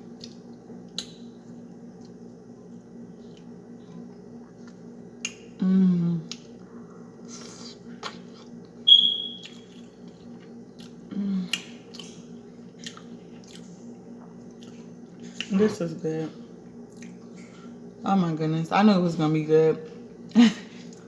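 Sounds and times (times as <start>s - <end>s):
steady low background hum: 0.0s - 21.0s
low voiced hums: 5.6s - 7.4s, 11.0s - 11.8s
close-up chewing: 9.4s - 15.5s.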